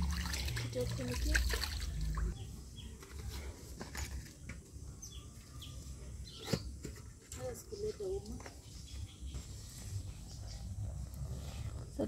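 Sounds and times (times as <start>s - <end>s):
water sloshing in a basin: 0.0s - 2.4s
small birds chirping: 0.4s - 3.5s, 4.4s - 12.0s.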